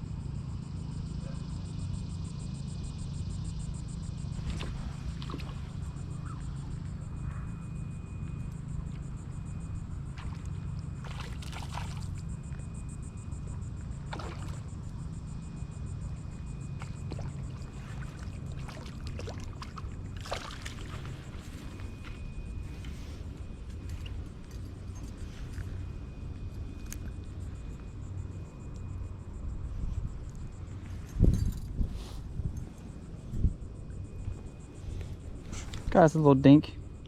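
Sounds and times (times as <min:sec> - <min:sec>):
faint thin whine: 0:00.0 - 0:37.0
steady low rumble: 0:00.0 - 0:37.0.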